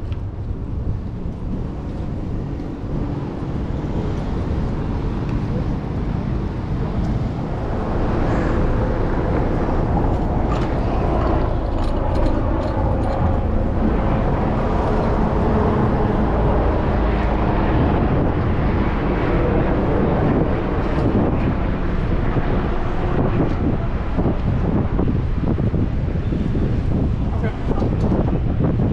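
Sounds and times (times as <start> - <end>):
city street traffic: 0.0 - 28.9.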